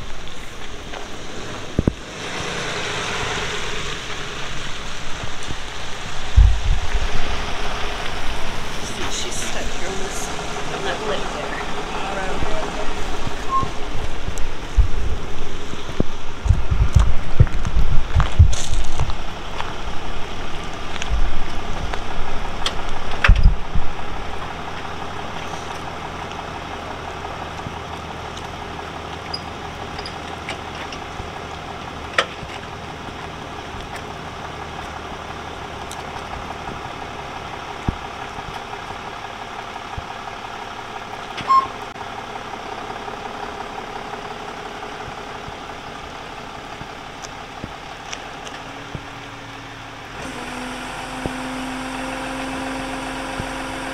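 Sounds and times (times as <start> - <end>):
road and rain hiss: 0.0 - 53.9
vehicle engine running: 0.0 - 53.9
loud knocks and bumps: 6.2 - 7.3.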